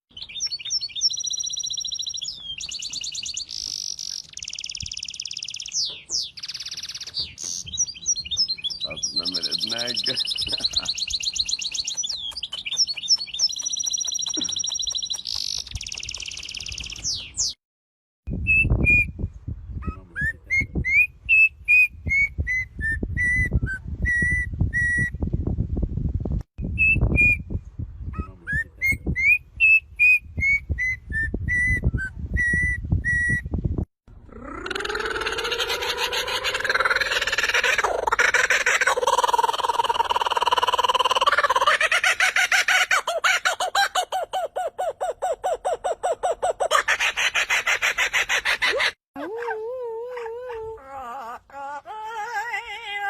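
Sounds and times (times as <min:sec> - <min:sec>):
rapid high bird chirping: 0:00.1 - 0:17.6
whistled bird song: 0:00.1 - 0:17.6, 0:18.3 - 0:25.2, 0:26.6 - 0:33.6.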